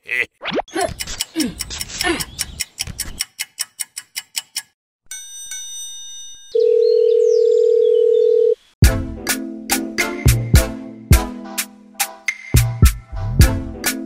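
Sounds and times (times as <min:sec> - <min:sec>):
clock ticking: 0:00.8 - 0:04.8
telephone ringing chime: 0:05.2 - 0:08.6
music with a beat: 0:08.8 - 0:14.0.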